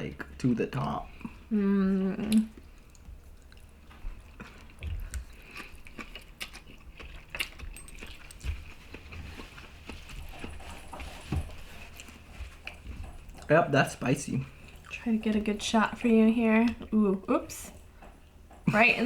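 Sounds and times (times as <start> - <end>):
person chewing: 0.8 - 13.5, 14.5 - 15.1.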